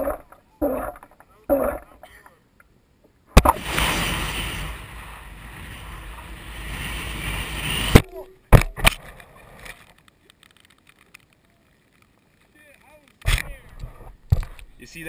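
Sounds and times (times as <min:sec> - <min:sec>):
rocket launching rush: 0:03.4 - 0:08.1.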